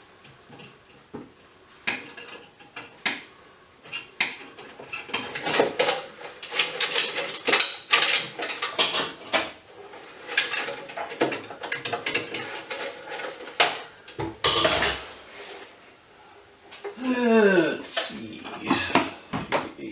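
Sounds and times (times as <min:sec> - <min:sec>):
metal parts and tools clinking: 0:03.9 - 0:15.1.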